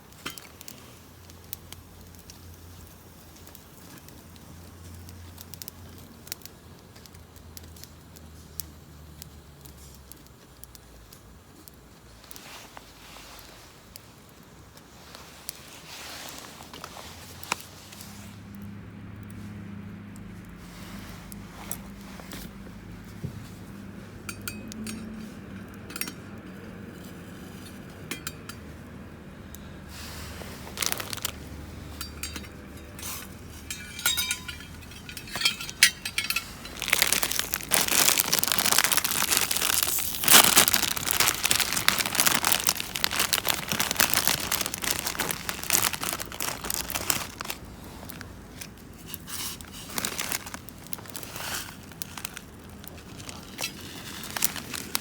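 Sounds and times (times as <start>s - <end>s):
crinkling and rustling: 9.6s - 29.0s, 29.9s - 55.0s
light clicks and clinks: 24.2s - 29.6s, 30.8s - 51.2s.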